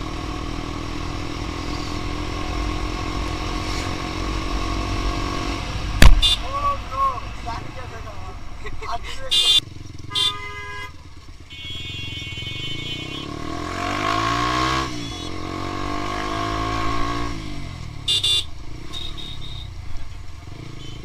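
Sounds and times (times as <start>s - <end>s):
motorcycle passing by: 0.0s - 6.0s, 9.6s - 19.6s
vehicle horns: 6.0s - 6.6s, 8.9s - 15.6s, 18.0s - 19.8s, 20.5s - 21.0s.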